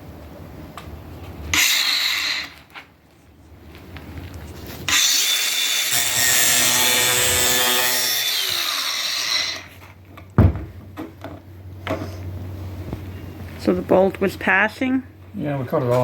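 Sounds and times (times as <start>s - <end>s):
power tool cutting bolt: 1.5s - 2.6s, 4.9s - 9.7s.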